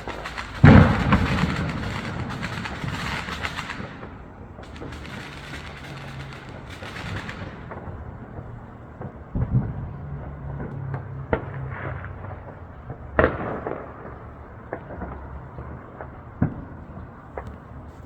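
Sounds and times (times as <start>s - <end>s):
fireworks bangs and pops: 0.0s - 9.9s.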